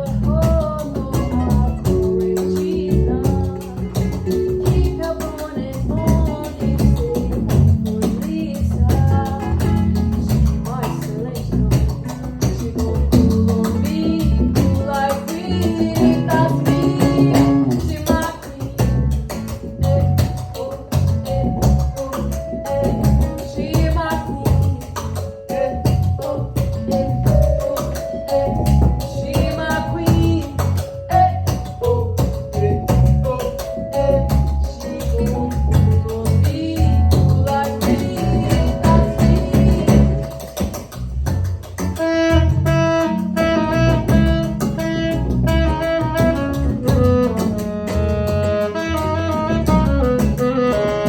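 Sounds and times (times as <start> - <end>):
bass line: 0.0 - 51.0
live band music: 0.0 - 51.0
percussive beat: 0.0 - 51.0
person singing: 12.0 - 18.9, 19.8 - 40.5.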